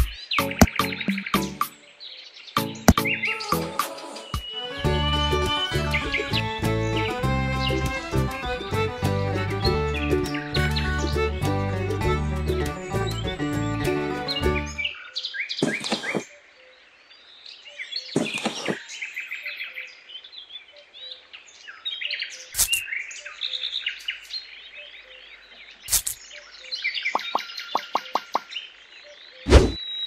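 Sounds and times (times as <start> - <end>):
sharp taps and knocks: 0.0 - 1.3, 2.8 - 3.1, 15.6 - 16.2
birds chirping and singing: 0.0 - 30.0.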